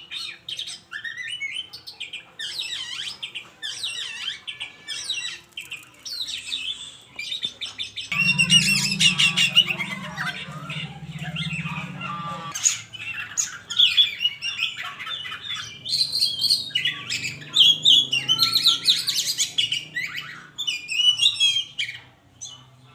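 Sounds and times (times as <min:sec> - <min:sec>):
songbird singing: 0:05.3 - 0:22.7
low buzz: 0:08.1 - 0:12.6.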